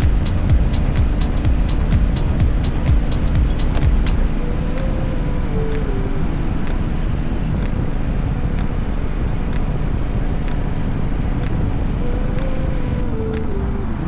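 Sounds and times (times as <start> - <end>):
sharp repeating tick: 0.0 - 4.9
road and engine rumble: 0.0 - 13.9.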